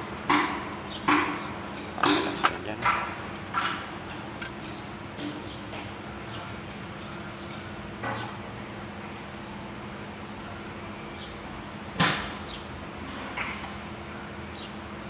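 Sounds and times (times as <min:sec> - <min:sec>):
sharp knocks of tools: 0:00.3 - 0:05.9, 0:12.0 - 0:12.4.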